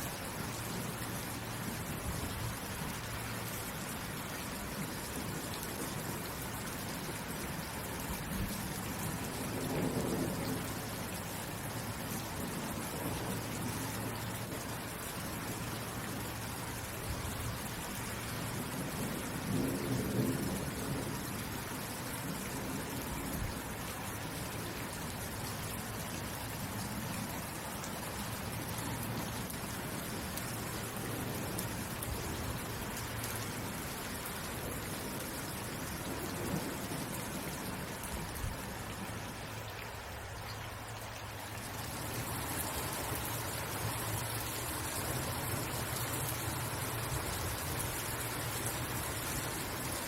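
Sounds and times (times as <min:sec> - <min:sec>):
steady rainfall: 0:00.0 - 0:50.0
low rumble of thunder: 0:04.5 - 0:39.2, 0:41.7 - 0:50.0.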